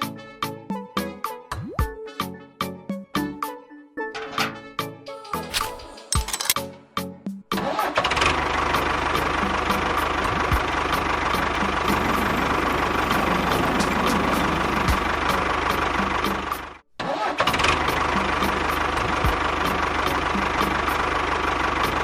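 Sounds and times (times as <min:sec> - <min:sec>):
music: 0:00.0 - 0:16.8, 0:17.5 - 0:22.0
motor humming with ticking: 0:11.6 - 0:16.2.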